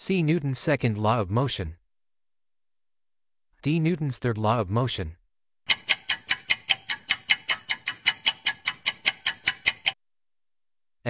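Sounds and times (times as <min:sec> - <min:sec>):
clock ticking fast: 0:05.7 - 0:10.0.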